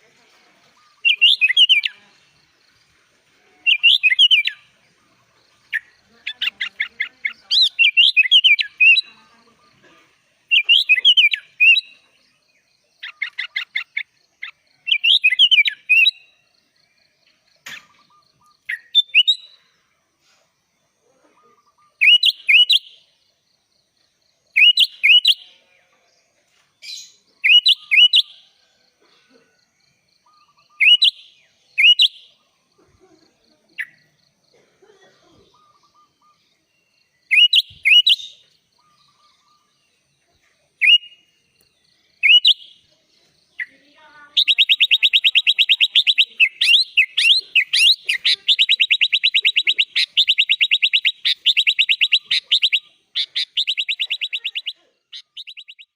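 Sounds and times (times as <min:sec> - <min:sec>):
bird singing whistled notes: 0:00.8 - 0:02.0, 0:03.6 - 0:04.7, 0:07.3 - 0:09.1, 0:10.5 - 0:16.4, 0:17.6 - 0:19.6, 0:21.6 - 0:23.1, 0:24.5 - 0:25.6, 0:26.8 - 0:28.4, 0:30.0 - 0:32.5, 0:35.6 - 0:40.2, 0:40.8 - 0:42.9, 0:43.6 - 0:55.9
fast bird trill: 0:03.6 - 0:04.7, 0:05.7 - 0:09.2, 0:13.0 - 0:16.2, 0:21.7 - 0:22.9, 0:30.4 - 0:32.3, 0:37.3 - 0:39.5, 0:42.2 - 0:42.8, 0:43.6 - 0:55.9.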